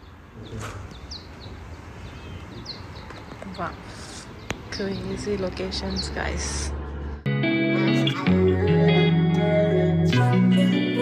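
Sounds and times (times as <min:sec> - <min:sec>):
sustained bass notes: 0:05.9 - 0:11.0
guitar background music: 0:07.2 - 0:11.0.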